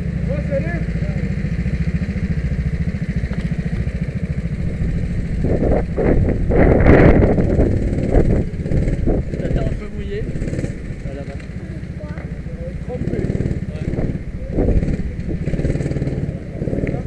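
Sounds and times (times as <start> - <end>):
go-kart engine running: 0.0 - 17.0
loud rushing noise: 4.5 - 11.0.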